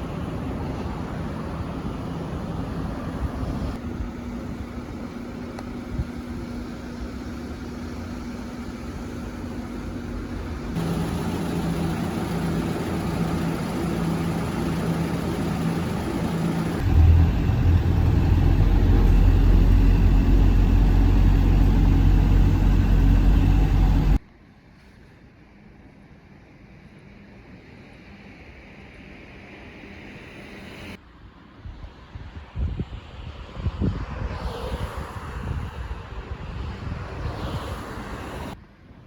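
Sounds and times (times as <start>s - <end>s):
vehicle engine hum: 0.0s - 24.2s
deep rumble: 10.6s - 24.2s.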